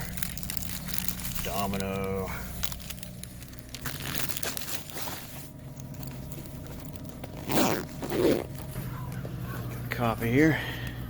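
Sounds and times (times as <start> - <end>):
items rustling and clicking: 0.0 - 9.9
zipper being pulled: 6.7 - 8.7.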